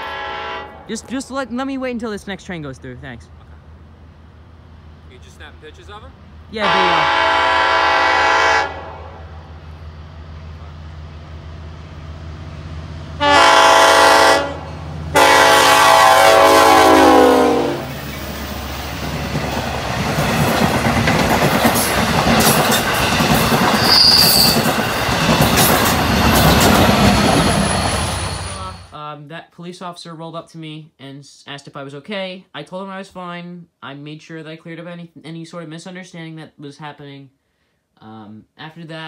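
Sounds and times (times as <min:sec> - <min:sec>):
train horn blasts: 0:00.0 - 0:00.9, 0:06.6 - 0:09.4, 0:13.2 - 0:17.9
diesel locomotive engine humming: 0:00.0 - 0:29.0
train wheels clattering on rails: 0:18.0 - 0:28.7
wheel squeal: 0:23.7 - 0:24.8.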